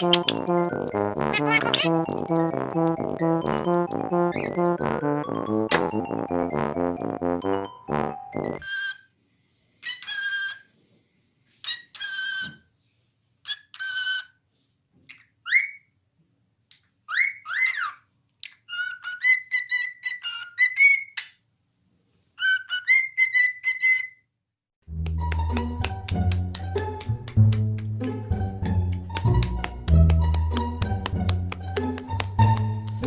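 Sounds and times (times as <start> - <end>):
music: 0.0 - 8.6, 24.9 - 33.0
parrot calling and whistling: 15.1 - 15.9, 17.1 - 18.0, 18.7 - 21.3, 22.4 - 24.2.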